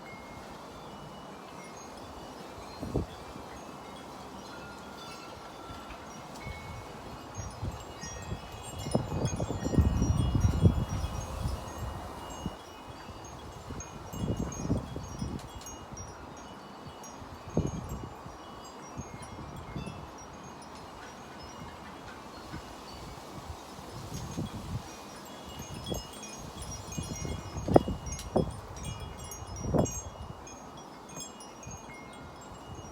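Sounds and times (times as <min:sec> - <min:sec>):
metal wind chimes ringing: 0:00.0 - 0:32.9
wind buffeting microphone: 0:06.4 - 0:16.2, 0:21.4 - 0:30.5.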